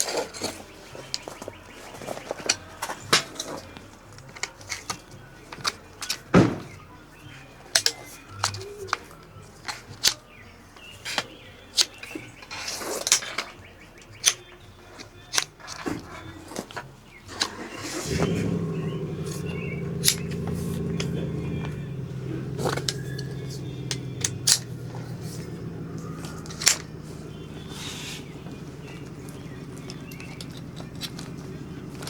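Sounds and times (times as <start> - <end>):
sharp clicks and knocks: 18.1 - 32.0.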